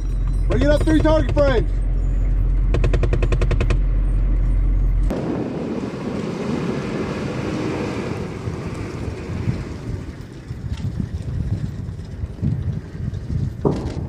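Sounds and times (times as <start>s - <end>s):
heavy low rumble: 0.0s - 14.0s
steady rushing noise: 5.1s - 14.0s.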